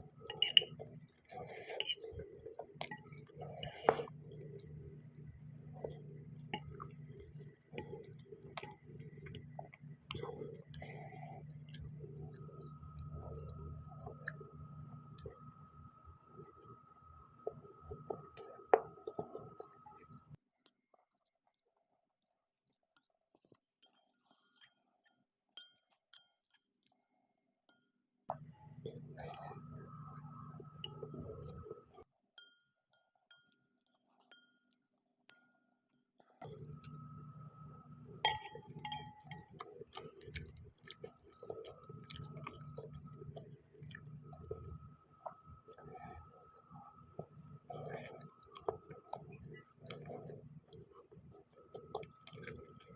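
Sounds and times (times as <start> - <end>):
noodles being chewed: 0.0 - 20.3, 36.4 - 52.9
utensil clinking against bowl: 0.2 - 2.2, 38.2 - 40.5
chewing noodles with mouth smacks: 38.4 - 52.9.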